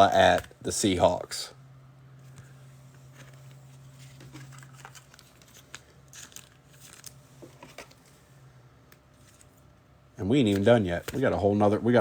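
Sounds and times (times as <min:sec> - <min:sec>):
low steady hum: 0:00.0 - 0:12.0
cards crinkling and rustling: 0:00.2 - 0:00.6, 0:02.3 - 0:08.2, 0:09.1 - 0:09.7, 0:10.3 - 0:11.6.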